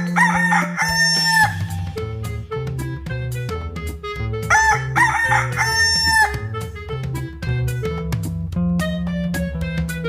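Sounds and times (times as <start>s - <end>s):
rooster crowing: 0.0s - 1.8s, 4.5s - 6.5s
background music: 0.0s - 10.0s.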